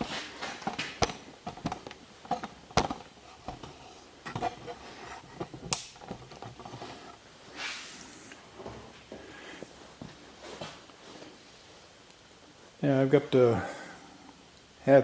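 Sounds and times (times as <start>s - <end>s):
tools and metal parts clattering: 0.0s - 7.0s.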